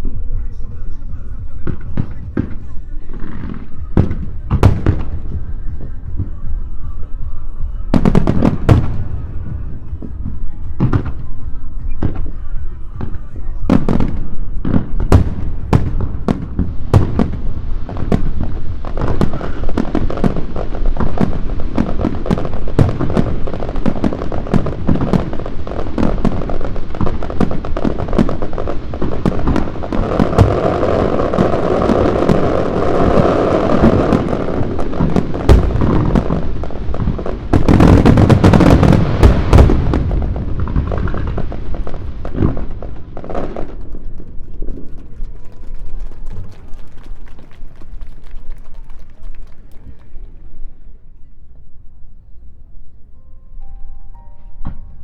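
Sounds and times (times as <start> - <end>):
fireworks shells bursting: 12.0 - 45.1.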